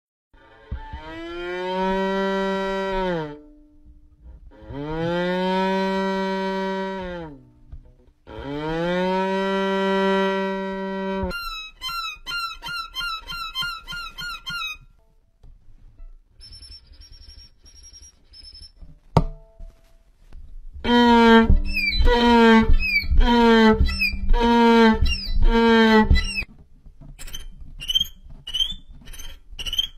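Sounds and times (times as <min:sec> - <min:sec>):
short high peeps: 0:16.4 - 0:18.8, 0:21.6 - 0:26.5
person chirping: 0:21.6 - 0:26.4.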